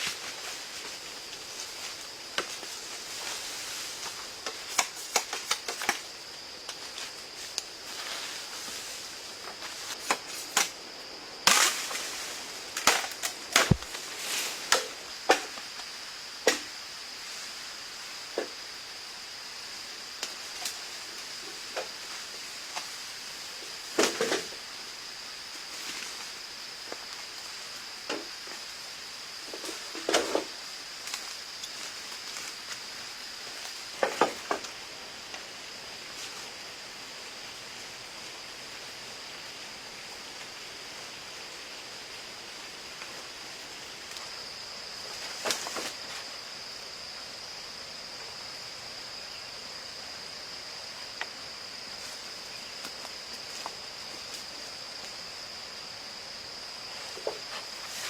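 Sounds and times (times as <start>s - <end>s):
sharp knocks and cracks: 4.4s - 6.0s, 9.9s - 10.8s, 11.4s - 12.0s, 12.8s - 14.0s, 14.7s - 15.6s, 16.4s - 16.7s.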